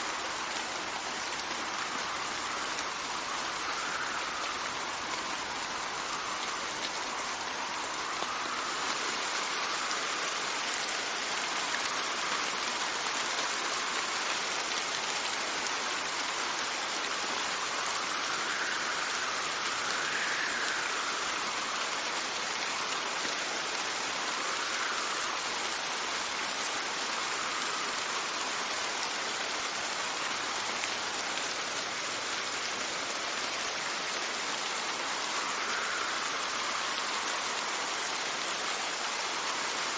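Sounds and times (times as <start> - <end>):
steady rain: 0.0 - 39.9
wind whistling: 0.1 - 11.3, 34.9 - 39.0.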